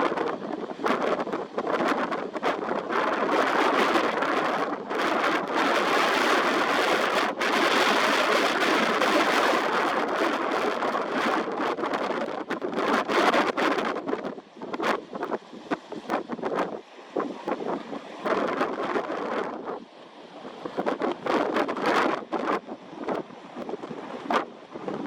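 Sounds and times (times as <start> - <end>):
rushing water: 0.0 - 25.0
wind buffeting microphone: 0.0 - 25.0.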